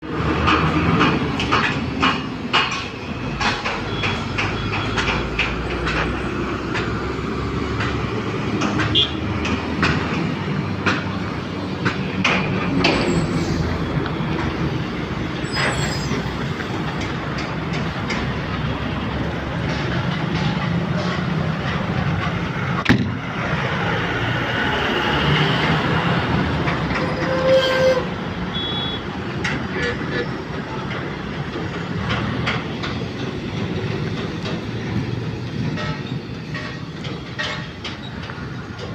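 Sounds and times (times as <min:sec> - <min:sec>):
heavy vehicle rumbling: 0:00.0 - 0:38.9
metallic clanks and rattles: 0:00.4 - 0:07.0, 0:30.6 - 0:38.9.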